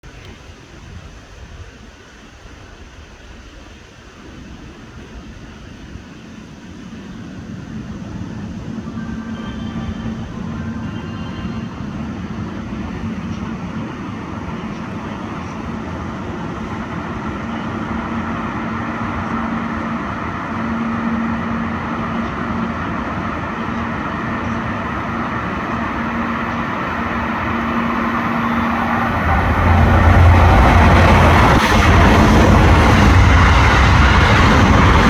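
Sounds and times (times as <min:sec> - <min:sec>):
train rumbling past: 0:00.0 - 0:35.0.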